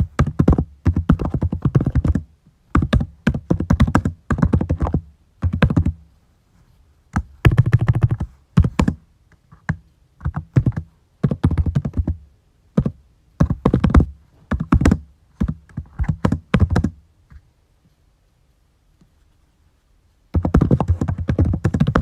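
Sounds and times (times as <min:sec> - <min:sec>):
keyboard typing: 0:02.8 - 0:06.0, 0:07.2 - 0:12.2, 0:12.8 - 0:17.0, 0:20.3 - 0:22.0.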